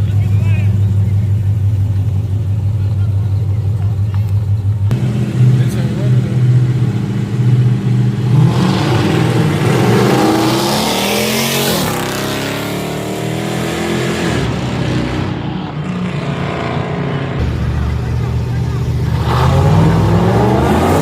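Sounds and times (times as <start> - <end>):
engines idling nearby: 0.0 - 10.2, 16.8 - 20.3.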